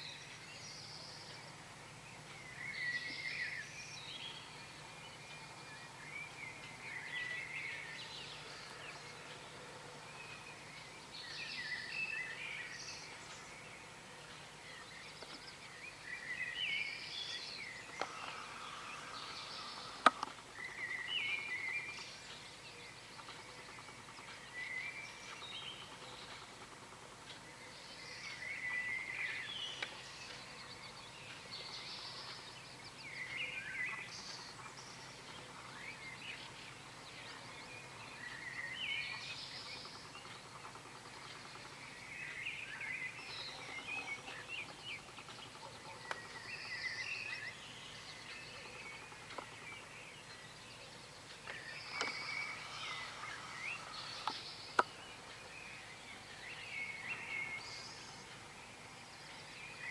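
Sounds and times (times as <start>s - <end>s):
songbirds chirping and warbling: 0.0s - 59.9s
steady hiss: 17.7s - 22.2s, 51.0s - 59.5s
sharp clicks: 19.8s - 20.4s.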